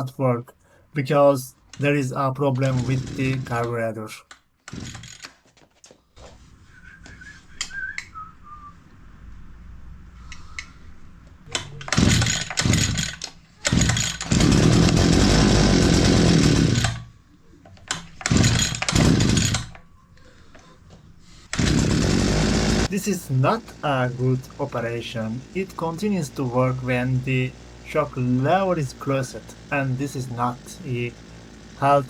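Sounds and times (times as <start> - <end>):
brushcutter engine sputtering: 1.7 - 3.9, 4.7 - 5.3, 11.5 - 17.1, 18.2 - 19.7, 21.5 - 32.0.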